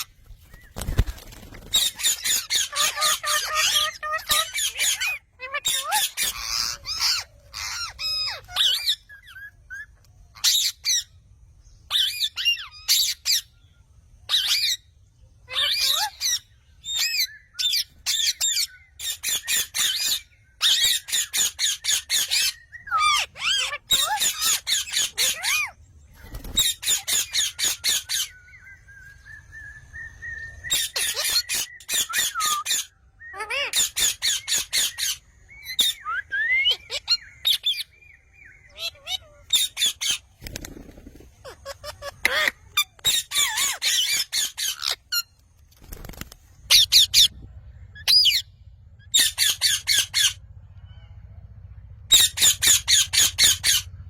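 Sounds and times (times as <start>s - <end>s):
parrot squawking: 1.7s - 11.1s, 15.5s - 25.8s, 26.6s - 28.4s, 30.7s - 37.9s, 38.6s - 40.2s, 41.4s - 45.2s, 46.7s - 47.3s, 48.0s - 50.4s, 52.1s - 53.9s.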